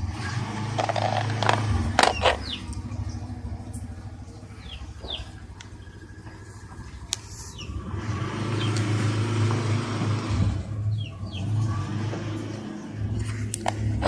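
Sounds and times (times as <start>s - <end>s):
refrigerator compressor humming: 0.0s - 14.0s
bird chirps: 2.1s - 7.8s, 10.9s - 11.6s.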